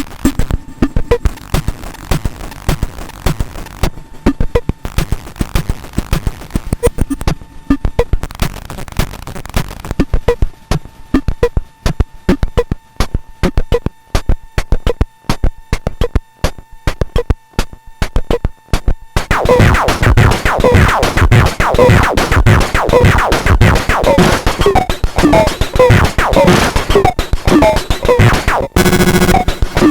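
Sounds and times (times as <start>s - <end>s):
glitchy drum machine clicks: 0.0s - 29.9s
loud dense noisy texture: 19.2s - 29.9s.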